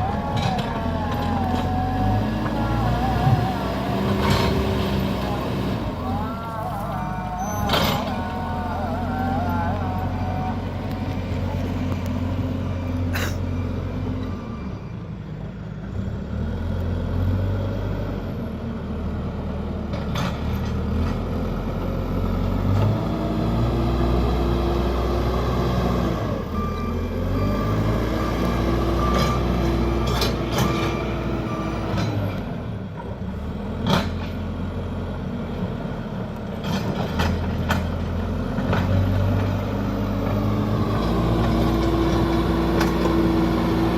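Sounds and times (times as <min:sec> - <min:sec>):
diesel engine revving: 0:00.0 - 0:43.9
beeps: 0:26.5 - 0:32.2.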